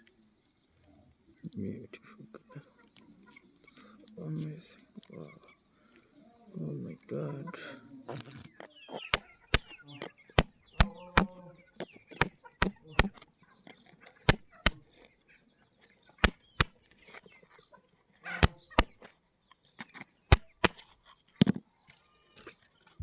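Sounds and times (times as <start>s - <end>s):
stones clicking together: 8.1s - 17.4s, 18.3s - 21.6s.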